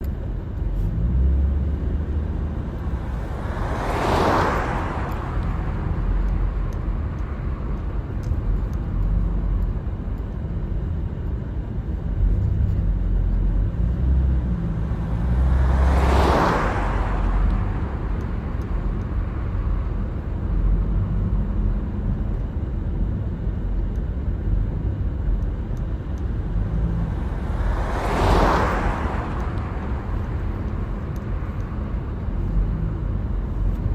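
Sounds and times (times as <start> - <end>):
tyre and engine rumble: 0.0 - 33.9
vehicles swooshing past: 0.9 - 7.6, 14.0 - 19.8, 26.4 - 33.9.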